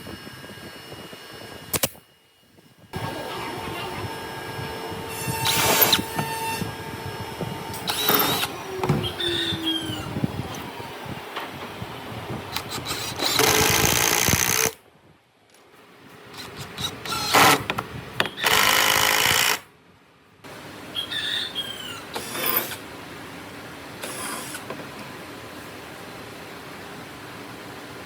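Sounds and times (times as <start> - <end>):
power tool running: 3.0 - 10.9, 12.5 - 14.8, 18.4 - 19.6
faint high squeaks: 8.0 - 10.2.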